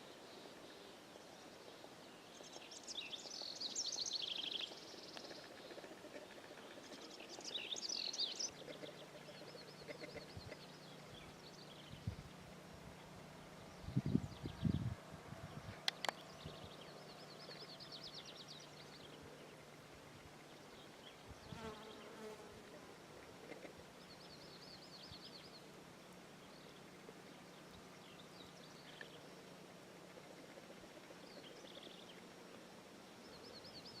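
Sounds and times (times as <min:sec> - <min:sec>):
songbirds singing: 0:00.0 - 0:34.0
steady low buzz: 0:08.5 - 0:21.8.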